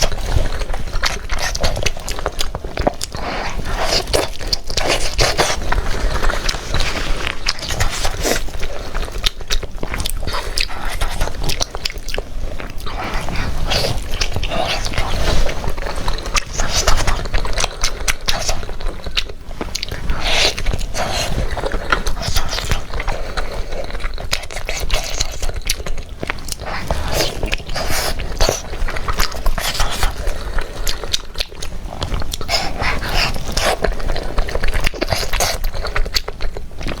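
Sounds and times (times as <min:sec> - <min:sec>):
wet chewing with crunchy clicks: 0:00.0 - 0:37.0.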